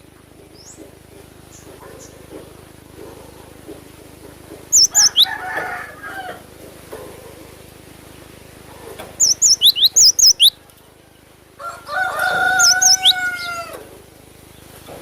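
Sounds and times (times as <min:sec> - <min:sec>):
rooster crowing: 0:04.8 - 0:06.6, 0:10.9 - 0:14.0.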